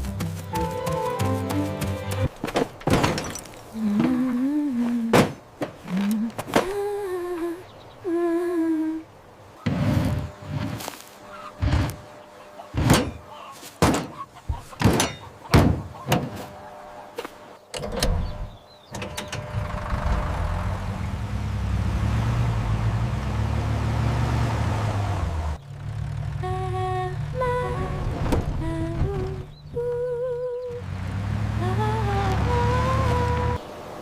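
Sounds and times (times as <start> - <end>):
sharp knocks and thunks: 2.1 - 3.4, 5.1 - 5.8, 12.7 - 13.2, 13.8 - 16.4
vehicle engine rumbling: 9.4 - 34.0.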